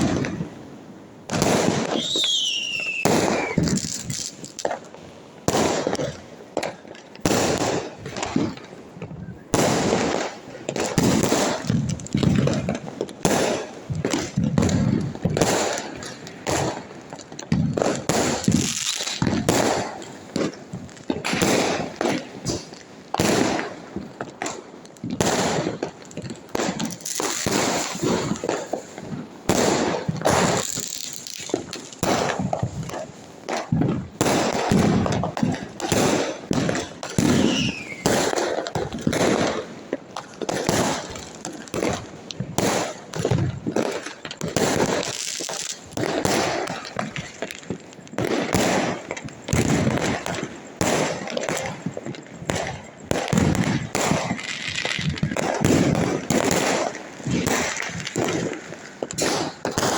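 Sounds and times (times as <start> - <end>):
firecrackers banging and crackling: 0.0 - 59.9
falling firework whistle: 1.3 - 4.4, 29.5 - 39.6.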